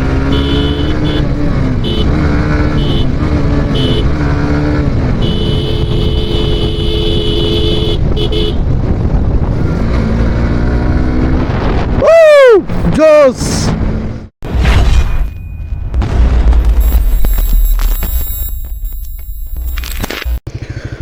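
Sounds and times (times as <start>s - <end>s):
motorcycle engine revving: 0.0s - 11.9s, 20.4s - 21.0s
vehicle horn tooting: 0.2s - 4.1s, 5.2s - 8.6s.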